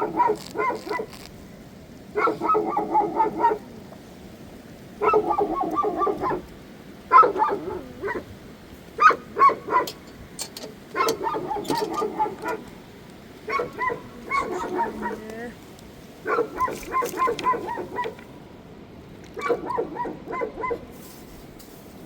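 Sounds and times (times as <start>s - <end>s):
animal calling: 0.0s - 1.3s, 2.2s - 3.8s, 5.0s - 6.5s, 7.1s - 8.4s, 9.0s - 10.0s, 10.9s - 12.8s, 13.4s - 15.6s, 16.2s - 18.3s, 19.4s - 20.9s.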